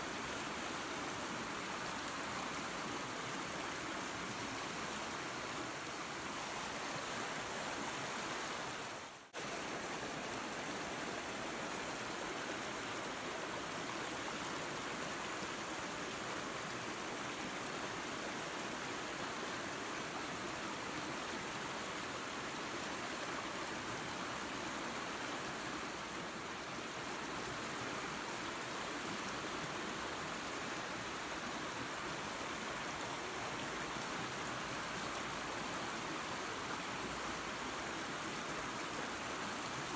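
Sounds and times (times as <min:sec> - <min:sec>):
waterfall and creek rushing: 0:00.0 - 0:39.9.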